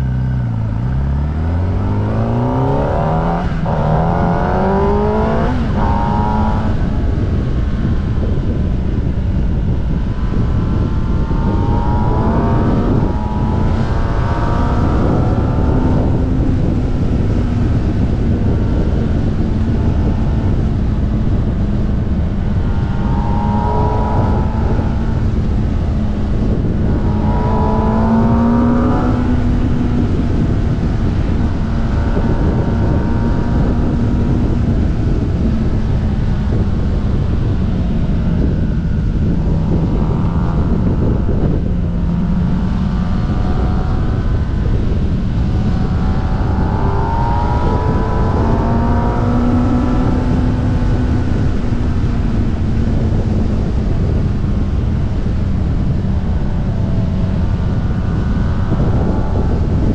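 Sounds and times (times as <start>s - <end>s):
motorcycle engine running: 0.0s - 59.9s
wind rushing on microphone: 0.0s - 59.9s.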